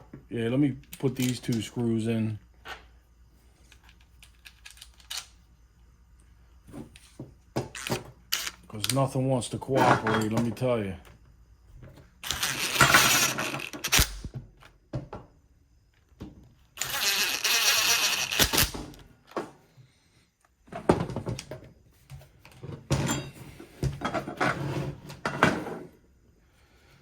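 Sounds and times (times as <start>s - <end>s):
clatter of parts being handled: 9.7s - 10.6s, 11.9s - 14.1s, 20.7s - 24.6s
power driver driving screws: 12.2s - 14.3s, 16.8s - 18.9s.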